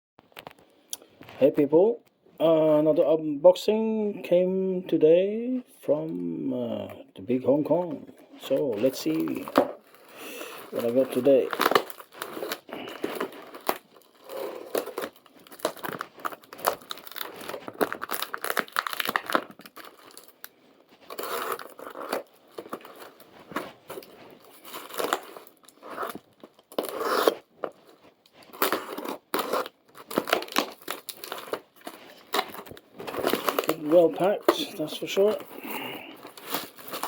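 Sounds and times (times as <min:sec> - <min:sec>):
packaging ripping and crinkling: 0:08.4 - 0:37.0.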